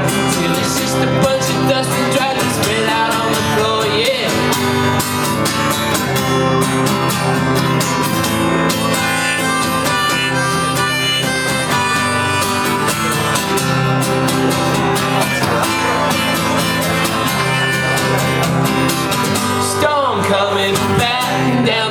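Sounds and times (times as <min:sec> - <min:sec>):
held melody line: 0:00.0 - 0:21.9
strummed acoustic guitar: 0:00.0 - 0:21.9.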